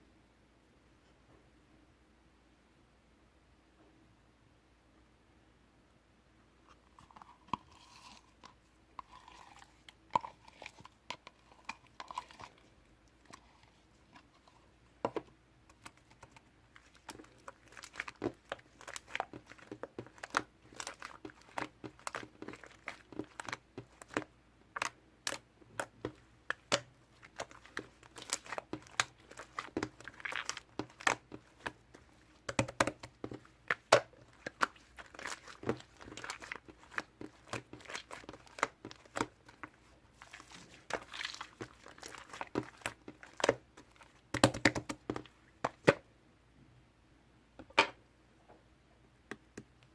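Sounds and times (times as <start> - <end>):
slime squished by hand: 15.7 - 46.0.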